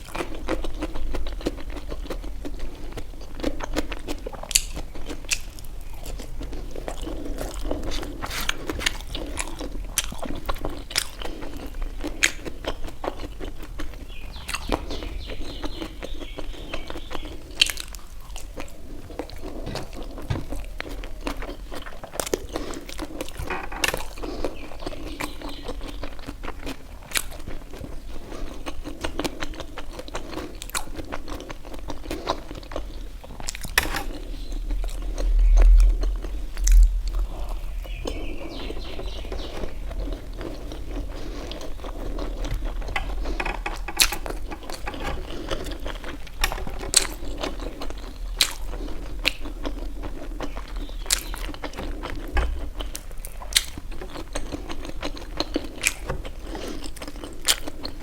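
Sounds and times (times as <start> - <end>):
wet chewing: 0.0 - 58.0
crunchy biting: 0.1 - 13.9.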